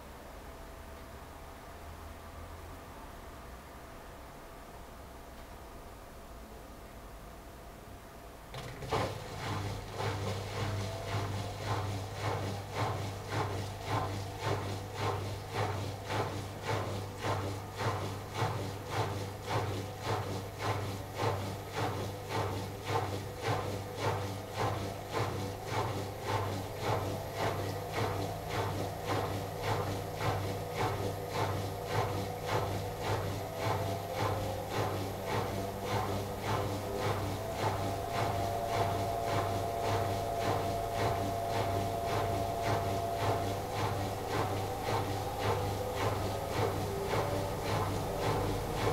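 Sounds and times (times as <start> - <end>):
washing machine low hum: 7.1 - 48.9
washing machine drum swishing: 8.5 - 48.9
faint motor tone rising in pitch: 26.2 - 48.9.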